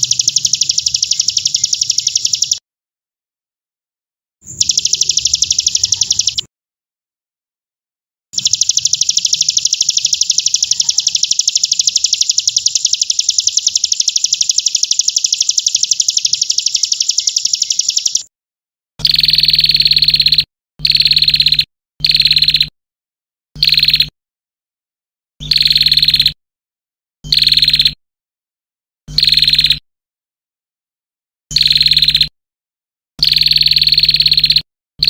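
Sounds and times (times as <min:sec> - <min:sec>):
songbird trilling: 0:00.0 - 0:02.6, 0:04.4 - 0:06.5, 0:08.4 - 0:18.3.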